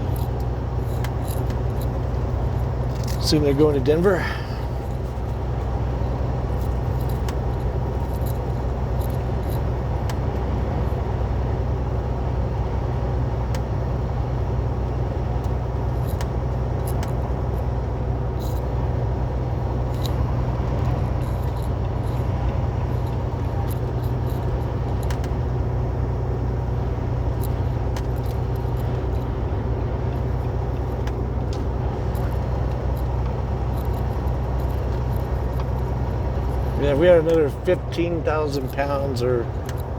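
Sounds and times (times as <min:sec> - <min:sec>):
small rattles and ticks: 0:00.0 - 0:05.8, 0:06.4 - 0:10.2, 0:15.9 - 0:17.7, 0:18.3 - 0:18.8, 0:19.8 - 0:25.6, 0:27.1 - 0:29.4, 0:30.0 - 0:39.9
diesel truck engine droning: 0:00.0 - 0:39.9.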